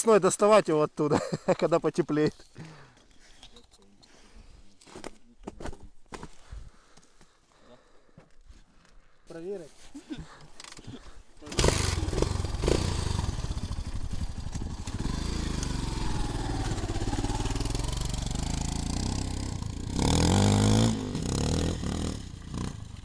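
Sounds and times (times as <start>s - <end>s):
motorcycle engine running: 11.5s - 23.0s.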